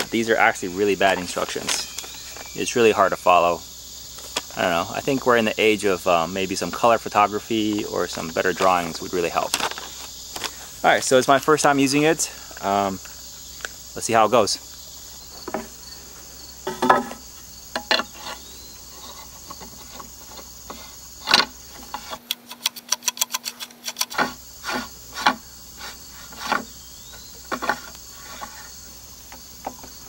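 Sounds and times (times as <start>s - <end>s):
crickets chirring: 0.0s - 30.0s
wrench clicking on bolts: 22.2s - 24.3s.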